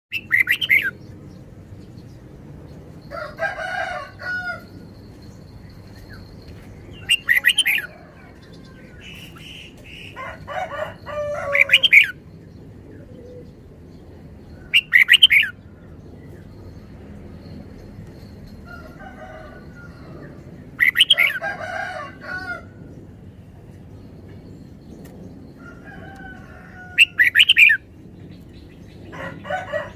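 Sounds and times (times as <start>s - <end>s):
lower layered bird calls: 0.1s - 1.2s, 4.0s - 13.7s, 14.4s - 16.6s, 19.6s - 21.4s, 23.8s - 29.9s
bird warbling bright phrases: 7.1s - 7.9s.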